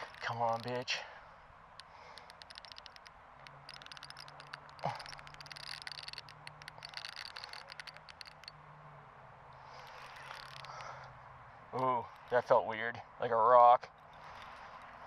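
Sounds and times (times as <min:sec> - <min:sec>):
fishing reel clicking: 0:00.0 - 0:00.9, 0:01.7 - 0:08.6, 0:09.7 - 0:11.1, 0:11.8 - 0:12.6.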